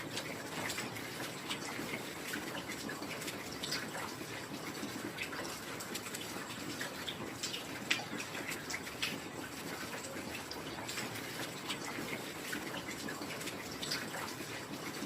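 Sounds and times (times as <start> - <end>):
raindrops striking close by: 0.0 - 15.0.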